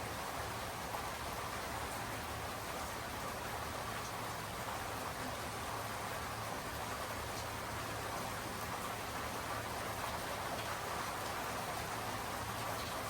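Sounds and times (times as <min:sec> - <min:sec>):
steady rain hiss: 0:00.0 - 0:13.0
faint drip ticks: 0:10.1 - 0:13.0.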